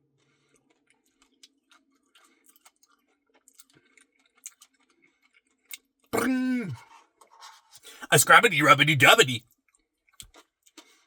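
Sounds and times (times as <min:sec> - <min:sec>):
mouth sounds eating ice cream: 0:06.2 - 0:06.8, 0:07.9 - 0:09.4.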